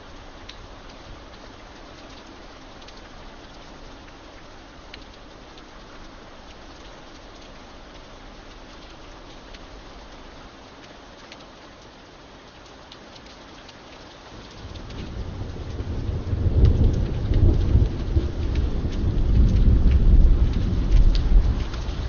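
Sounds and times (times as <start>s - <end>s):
rain: 0.0s - 22.0s
raindrop ticks: 0.0s - 22.0s
thunder rumbling: 14.4s - 22.0s.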